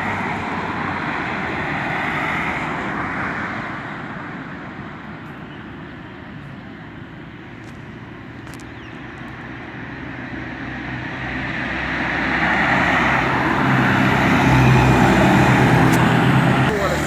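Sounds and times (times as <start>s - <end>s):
motor vehicle approaching: 7.6s - 17.0s.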